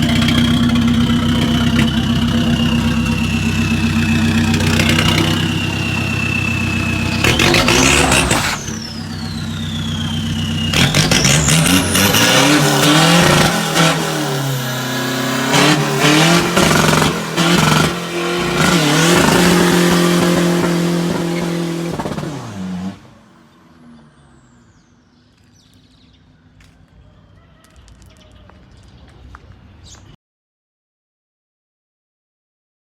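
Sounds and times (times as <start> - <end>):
turbo whistling: 0.0 - 22.2
diesel engine revving: 0.0 - 25.5.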